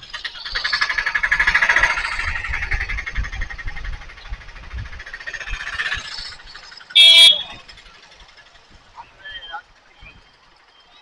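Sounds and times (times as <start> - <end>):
wind rumble on microphone: 0.0 - 7.9.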